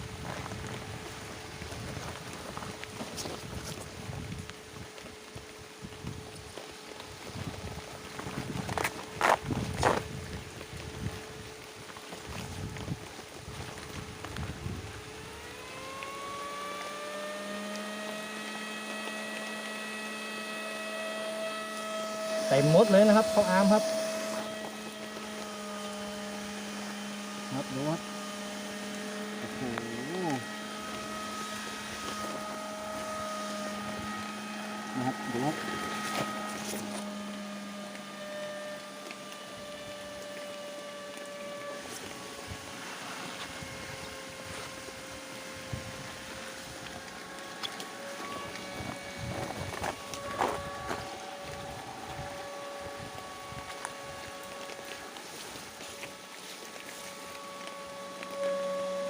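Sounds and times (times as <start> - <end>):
wind or rain noise: 0.0 - 18.6, 35.7 - 58.4
constant hiss: 0.0 - 59.0
motor whine: 0.0 - 59.0.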